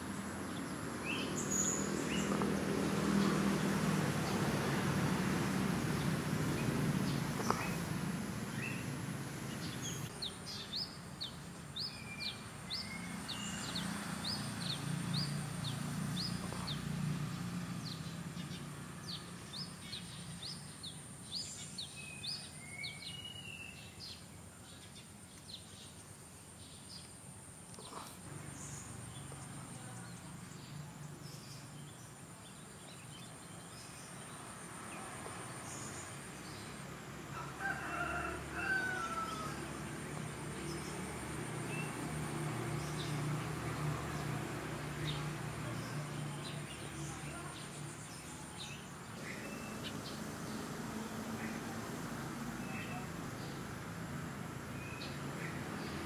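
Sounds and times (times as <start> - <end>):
small bird chirping: 6.5 - 16.9.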